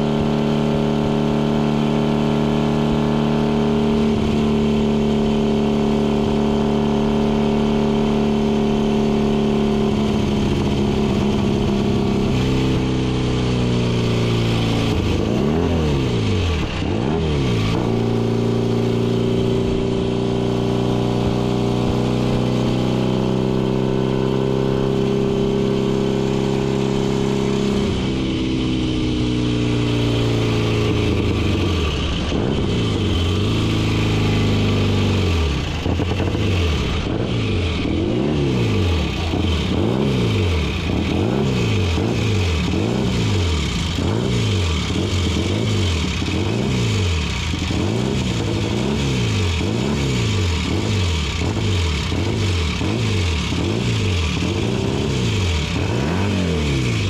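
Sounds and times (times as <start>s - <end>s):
racing motorcycle engine: 0.0s - 57.0s.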